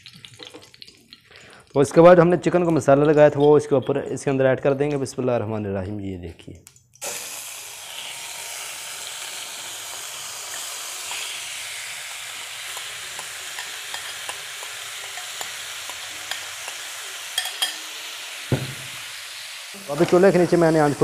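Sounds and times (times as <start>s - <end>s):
meat sizzling in a frying pan: 7.0s - 21.0s.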